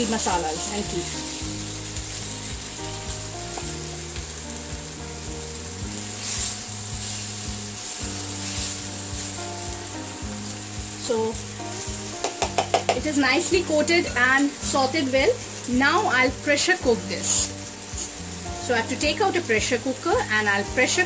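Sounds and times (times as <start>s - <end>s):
food sizzling in a pan: 0.0s - 21.0s
soft background music: 0.0s - 21.0s
spatula scraping a pan: 6.0s - 9.4s.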